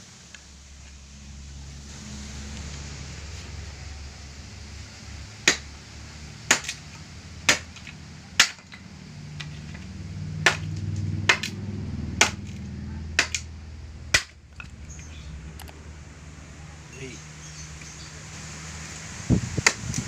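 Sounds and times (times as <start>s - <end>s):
low hum: 0.0s - 18.3s
sharp strikes: 10.4s - 11.6s, 12.2s - 13.5s.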